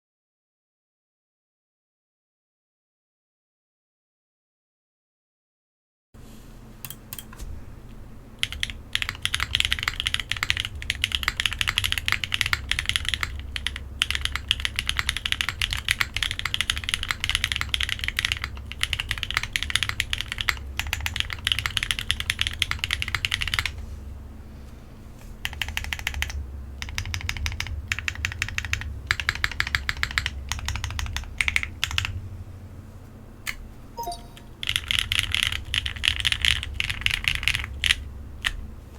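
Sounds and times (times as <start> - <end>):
mechanical keyboard typing: 8.4 - 23.7, 25.4 - 32.1, 34.0 - 38.6.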